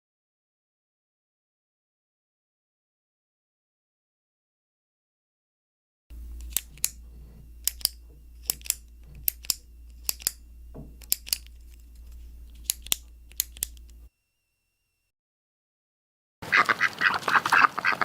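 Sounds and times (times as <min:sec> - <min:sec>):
low hum: 0:06.1 - 0:15.1
sharp mechanical clicks: 0:06.3 - 0:14.1.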